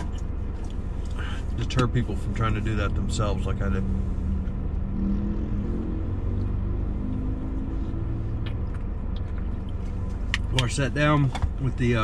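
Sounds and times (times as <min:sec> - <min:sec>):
car idling heard inside cabin: 0:00.0 - 0:04.9, 0:07.7 - 0:12.0.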